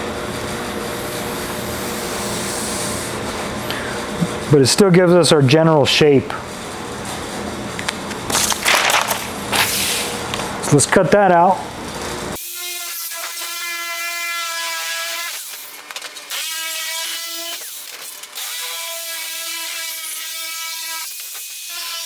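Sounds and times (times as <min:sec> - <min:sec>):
electric shear cutting metal: 0:08.1 - 0:10.9, 0:12.0 - 0:22.0.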